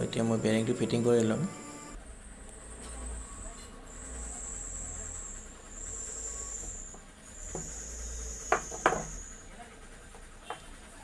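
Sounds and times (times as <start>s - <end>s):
insect trill: 7.4s - 9.4s.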